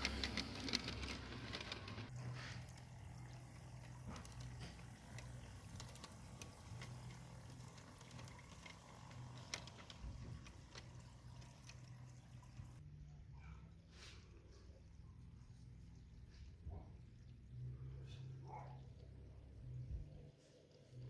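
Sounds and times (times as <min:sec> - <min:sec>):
model train motor hum: 0:00.0 - 0:12.8.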